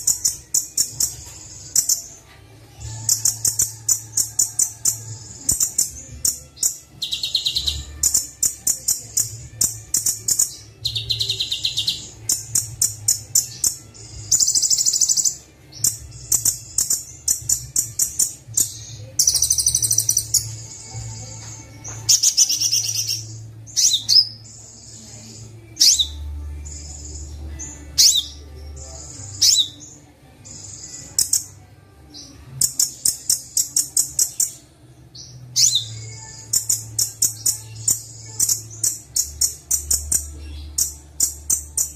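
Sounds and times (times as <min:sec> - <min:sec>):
sunbird high chirps and trills: 0:00.0 - 0:31.6, 0:35.2 - 0:41.9.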